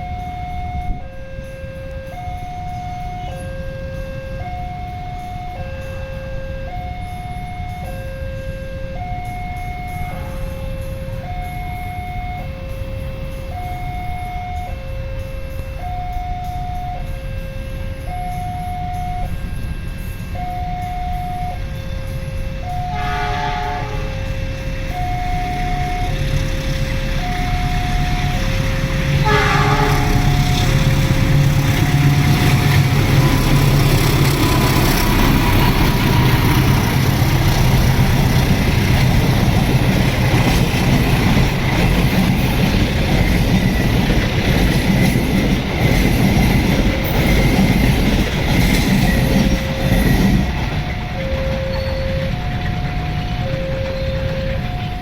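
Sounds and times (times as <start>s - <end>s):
train engine and wheels rumbling: 0.0s - 55.0s
two-tone electronic warning signal: 0.0s - 55.0s
locomotive horn: 9.9s - 12.7s, 21.2s - 39.6s
wheels clicking over rail joints: 24.2s - 55.0s.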